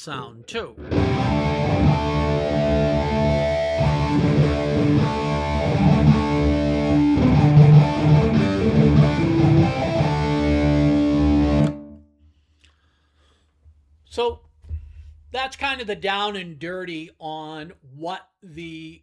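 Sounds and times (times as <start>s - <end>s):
distorted electric guitar: 0.7s - 12.0s.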